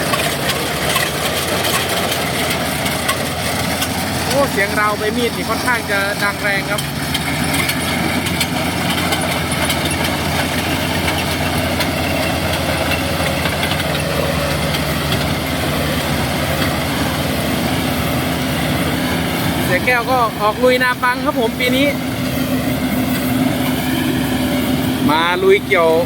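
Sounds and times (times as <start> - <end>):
combine harvester engine running: 0.0 - 26.0.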